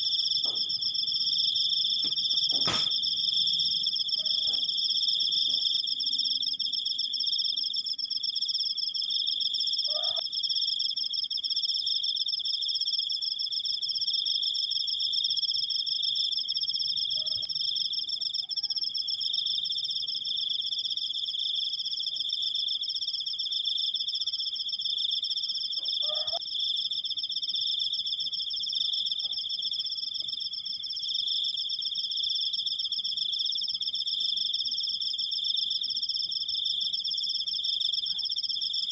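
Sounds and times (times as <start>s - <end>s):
cricket trilling: 0.0s - 38.9s.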